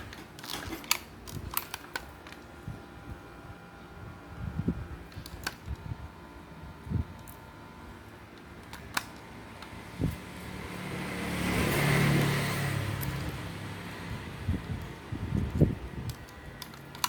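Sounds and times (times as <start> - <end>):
vehicle engine passing by: 9.8 - 14.7.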